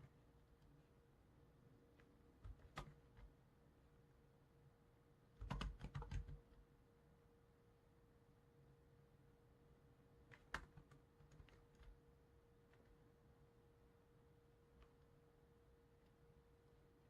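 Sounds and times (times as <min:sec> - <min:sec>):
faint steady hum: 0:00.0 - 0:17.0
keyboard typing: 0:02.4 - 0:03.3, 0:05.4 - 0:06.6, 0:10.3 - 0:12.0.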